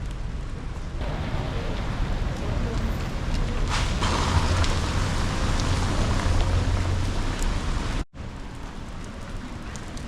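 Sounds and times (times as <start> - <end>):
steady rain: 0.0 - 10.0
low rumble: 3.7 - 8.0.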